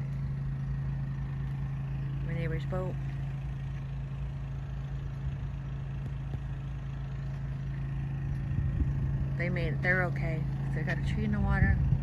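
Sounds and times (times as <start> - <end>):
portable generator running: 0.0 - 12.0.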